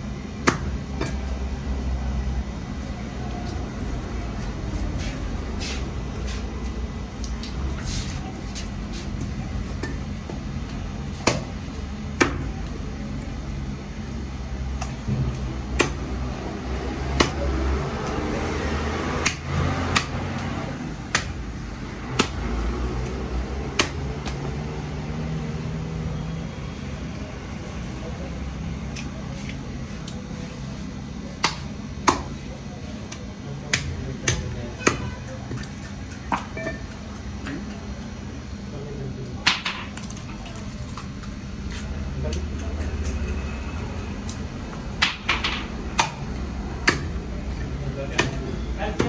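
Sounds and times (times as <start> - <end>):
knife chopping fish: 11.2 - 11.5, 15.7 - 16.0, 19.2 - 20.3, 23.8 - 24.4, 46.8 - 47.2.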